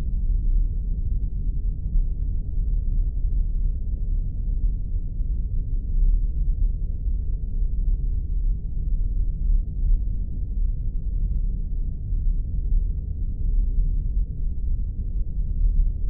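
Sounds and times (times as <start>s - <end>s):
low rumbling spaceship drone: 0.0s - 16.0s.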